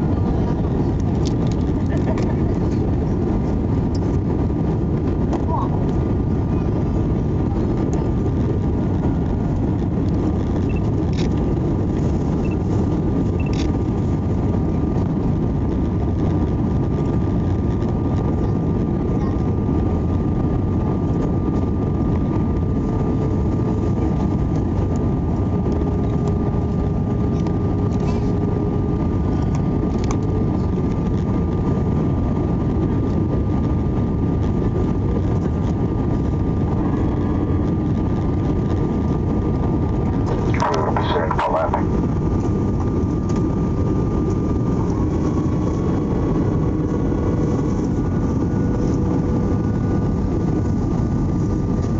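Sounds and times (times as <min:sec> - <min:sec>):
thin steady whine: 0:00.0 - 0:15.6, 0:36.0 - 0:51.9
aircraft engines and airflow rush: 0:00.0 - 0:51.9.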